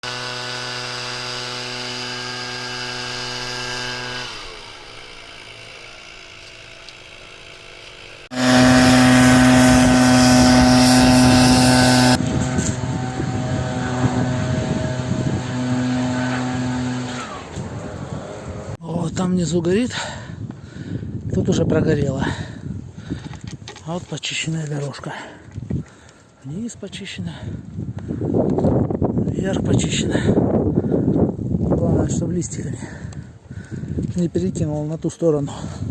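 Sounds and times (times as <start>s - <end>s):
engine running steadily: 0.0s - 18.8s.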